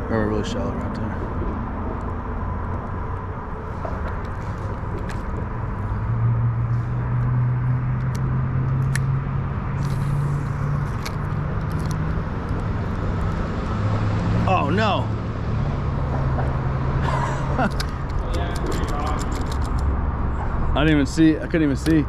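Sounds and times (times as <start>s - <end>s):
traffic rumble: 0.0s - 22.0s
vehicle passing: 0.0s - 22.0s.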